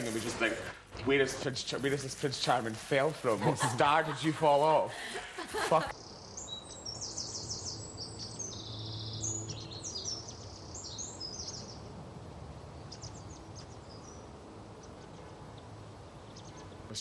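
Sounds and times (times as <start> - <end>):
small birds chirping and singing: 5.9 - 12.0, 12.6 - 17.0.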